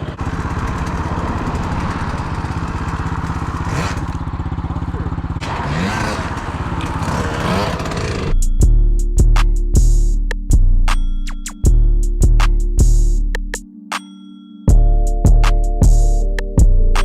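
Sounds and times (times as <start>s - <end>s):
dirt bike engine running: 0.0s - 8.5s
hip-hop beat with heavy bass: 8.3s - 14.1s, 14.7s - 17.0s.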